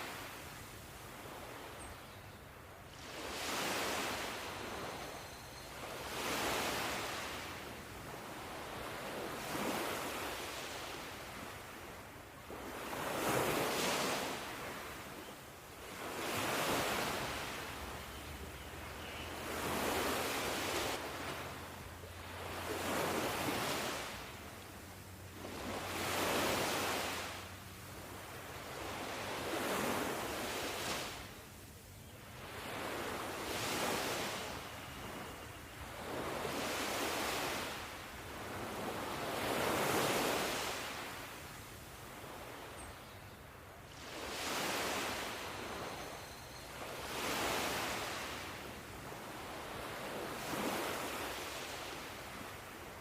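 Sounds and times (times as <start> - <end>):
ocean waves washing in: 0.0 - 1.4, 19.1 - 31.4.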